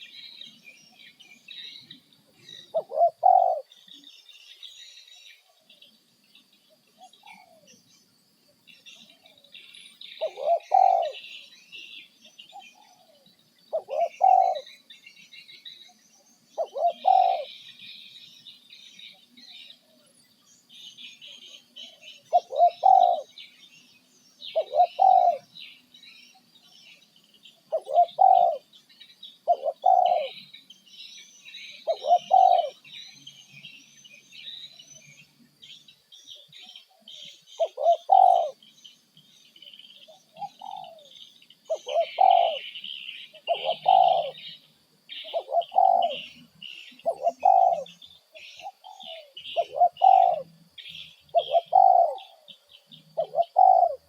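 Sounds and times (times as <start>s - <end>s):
bird call: 8.8s - 20.1s, 20.8s - 23.8s, 24.4s - 28.7s, 29.3s - 54.0s
high-pitched bird chirping: 45.2s - 48.0s.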